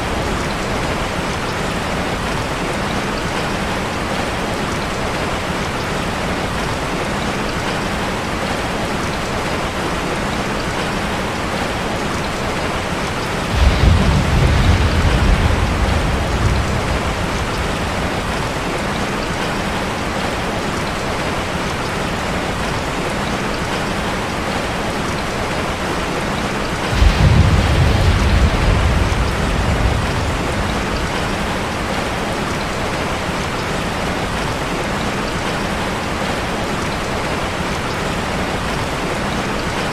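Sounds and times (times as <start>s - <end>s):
rain drumming on a metal roof: 0.0s - 39.9s
thunder rumbling: 12.8s - 19.9s, 26.7s - 32.7s.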